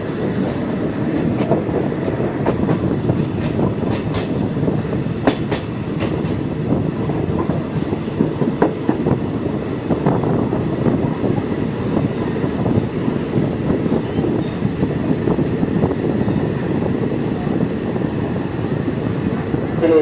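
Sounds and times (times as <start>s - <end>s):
train rumbling along track: 0.0s - 20.0s
wheels clicking on rails: 1.1s - 6.6s.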